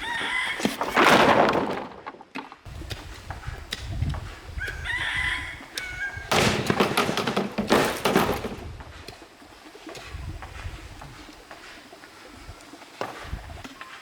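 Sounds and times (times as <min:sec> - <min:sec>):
rooster crowing: 0:00.0 - 0:01.0, 0:04.6 - 0:06.7
rustling noise: 0:00.0 - 0:05.3
sharp knocks: 0:06.3 - 0:08.7.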